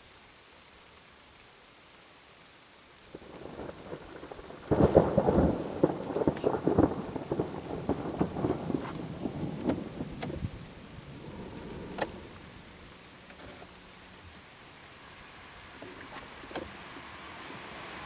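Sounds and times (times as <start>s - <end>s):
thunder rumbling and crackling: 3.1s - 13.2s.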